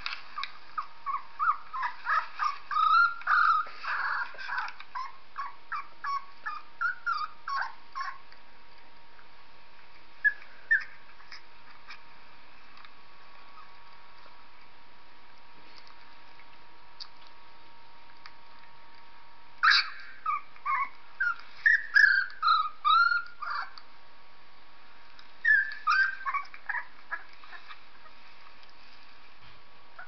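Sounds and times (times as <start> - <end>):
dog whimpering and squealing: 0.4 - 8.2, 10.2 - 11.5, 19.6 - 23.8, 25.4 - 28.2.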